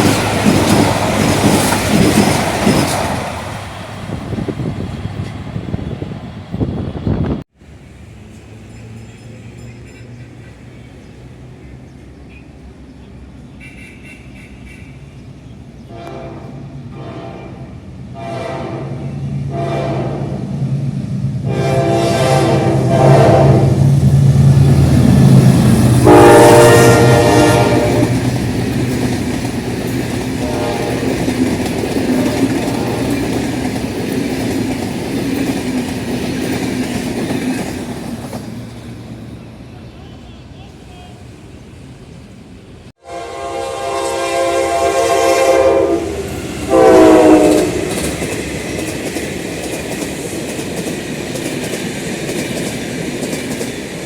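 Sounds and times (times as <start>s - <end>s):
locomotive engine and wheel noise: 0.0s - 16.9s, 20.4s - 42.9s
locomotive horn blasts: 15.9s - 20.4s, 21.4s - 23.8s, 26.0s - 28.2s, 30.4s - 31.2s, 43.0s - 47.9s.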